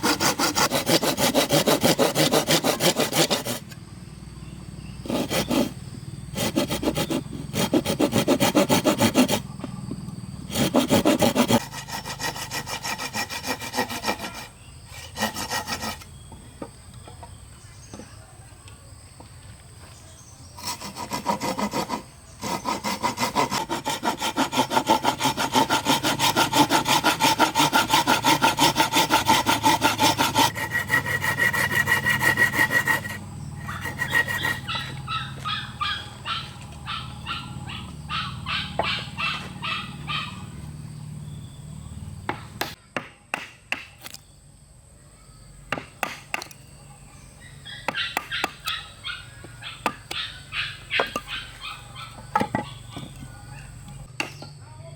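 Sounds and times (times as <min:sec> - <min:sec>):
hand saw cutting wood: 0:00.0 - 0:03.8, 0:05.0 - 0:09.6, 0:10.5 - 0:16.2, 0:20.6 - 0:40.3, 0:47.9 - 0:48.9.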